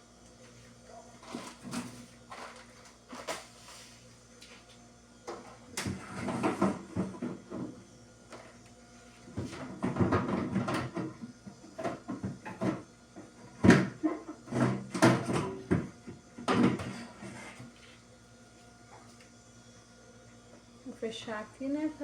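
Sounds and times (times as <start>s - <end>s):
containers clattering in refrigerator: 5.3s - 7.4s.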